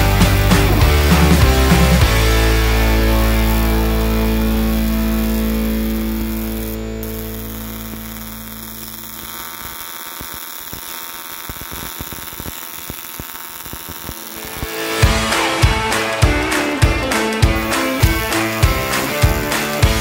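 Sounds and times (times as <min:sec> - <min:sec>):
music: 0:00.0 - 0:09.2, 0:14.4 - 0:20.0
welding arc buzzing: 0:00.0 - 0:20.0
faint crackles: 0:03.0 - 0:14.9.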